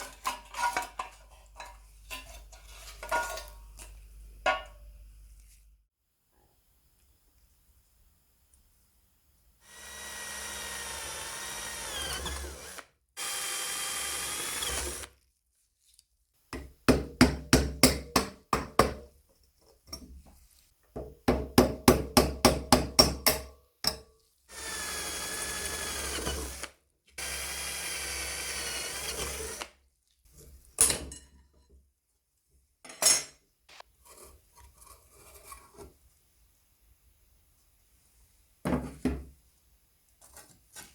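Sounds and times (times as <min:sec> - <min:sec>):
small power tool whining: 0:09.6 - 0:15.1, 0:24.5 - 0:29.7.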